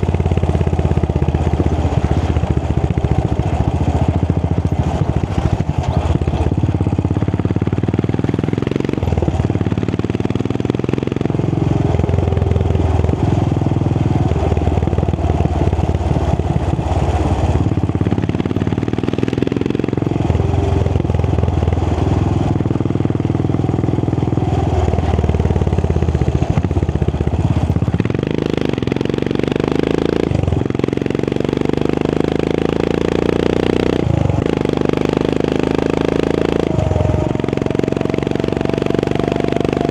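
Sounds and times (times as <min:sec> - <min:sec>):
motorcycle engine thumping: 0:00.0 - 0:29.2.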